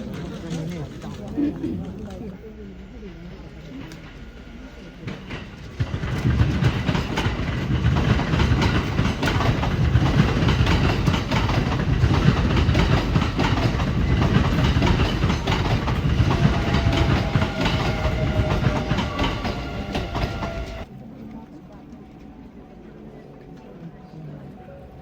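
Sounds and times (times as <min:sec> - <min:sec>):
train wheels clattering: 0:03.7 - 0:20.9.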